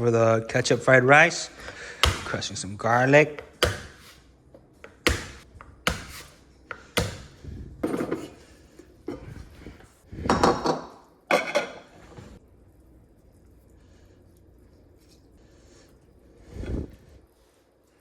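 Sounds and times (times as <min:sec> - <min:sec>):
garlic crushing strokes: 0:00.5 - 0:07.7.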